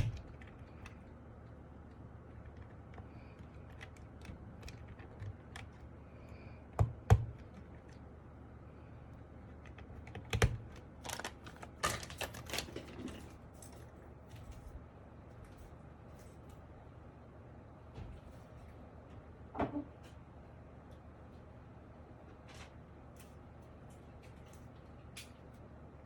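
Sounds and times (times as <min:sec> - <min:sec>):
mechanical keyboard keys clicking: 0:00.0 - 0:01.1, 0:01.9 - 0:05.9, 0:09.5 - 0:12.8.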